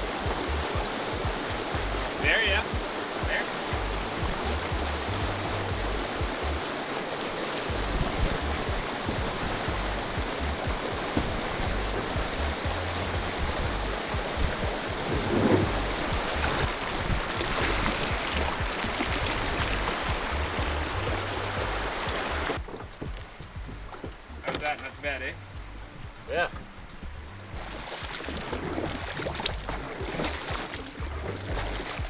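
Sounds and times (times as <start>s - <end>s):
river rushing over rapids: 0.0s - 23.4s
low irregular rumble: 7.7s - 32.0s.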